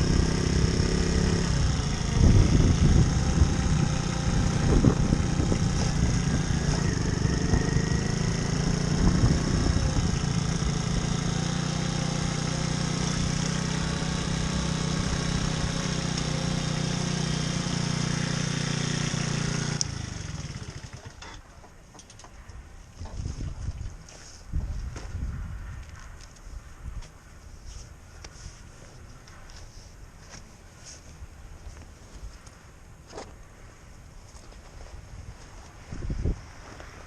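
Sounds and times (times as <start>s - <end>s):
moped engine running: 0.0s - 21.4s.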